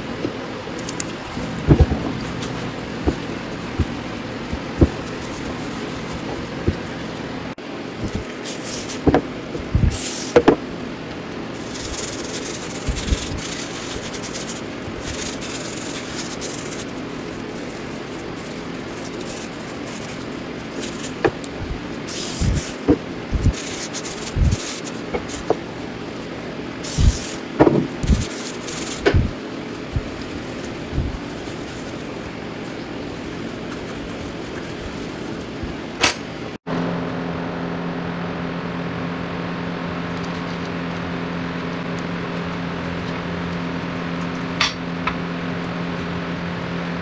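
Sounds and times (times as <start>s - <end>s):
scrubbing and rubbing: 0.0s - 36.6s
metal clinks and knocks: 36.0s - 36.3s.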